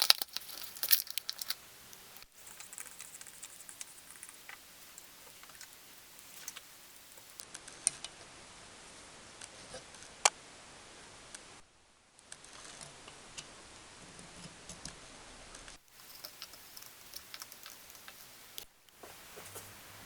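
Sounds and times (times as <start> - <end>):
small clicks and ticks: 0.0 - 8.0, 15.9 - 18.7
faint hiss: 0.0 - 14.4, 15.0 - 20.0.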